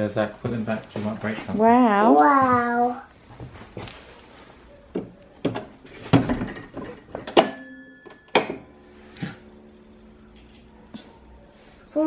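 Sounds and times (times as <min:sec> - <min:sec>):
knocks and thuds: 0:05.0 - 0:07.4.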